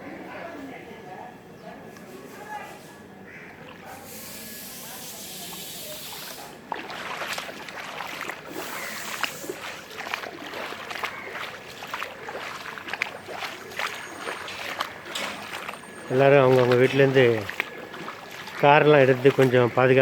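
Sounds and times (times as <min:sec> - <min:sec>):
wading through splashing water: 0:02.0 - 0:20.0
hiss of moving water: 0:03.9 - 0:07.2, 0:07.9 - 0:10.6.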